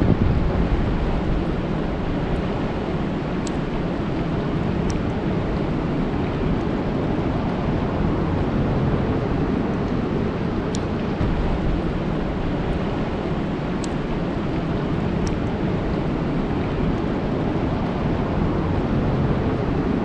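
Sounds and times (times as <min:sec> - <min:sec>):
rain falling on a lake: 0:00.1 - 0:08.0, 0:08.7 - 0:19.0
water drip ticks: 0:01.2 - 0:07.6, 0:10.7 - 0:18.2.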